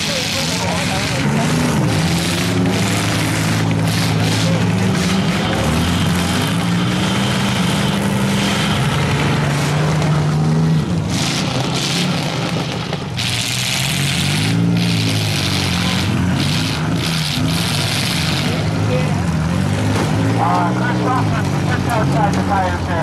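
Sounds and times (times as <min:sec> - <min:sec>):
car engines revving: 0:00.0 - 0:23.0.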